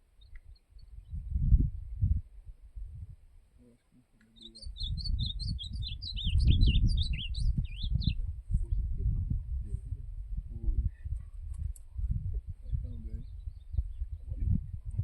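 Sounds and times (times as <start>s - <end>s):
bird warbling song: 0.1s - 2.0s, 3.6s - 8.9s, 11.0s - 14.9s.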